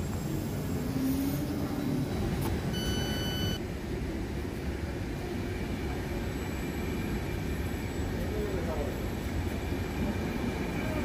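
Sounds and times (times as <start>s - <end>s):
trains rumbling low: 0.0s - 11.0s
short electronic beep: 2.7s - 3.6s.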